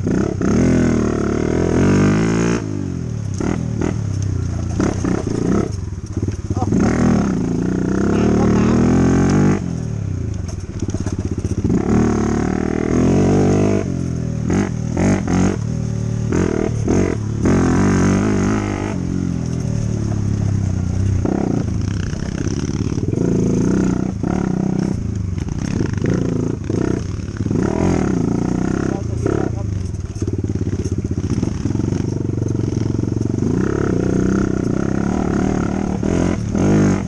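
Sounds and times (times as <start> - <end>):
dirt bike engine revving: 0.0 - 37.0
clatter: 3.2 - 7.4, 10.2 - 37.0.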